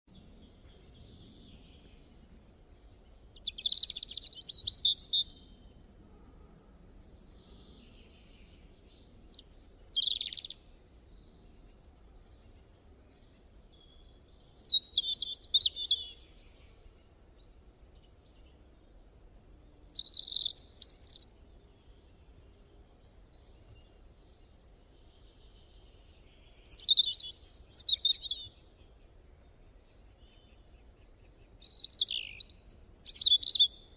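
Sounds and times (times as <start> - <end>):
songbird singing: 0.1 - 33.9.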